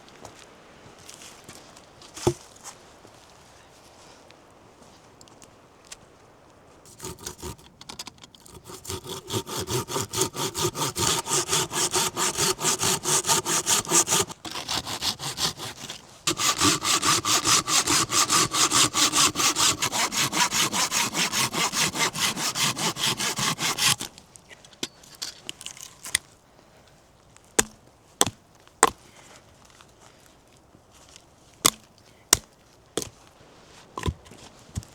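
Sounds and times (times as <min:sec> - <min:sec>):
hand saw cutting wood: 0:06.9 - 0:24.1.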